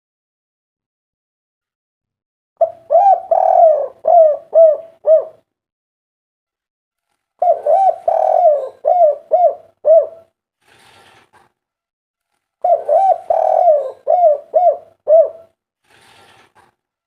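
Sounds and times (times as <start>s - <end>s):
dove cooing: 2.6s - 5.5s, 7.4s - 10.3s, 12.6s - 15.6s.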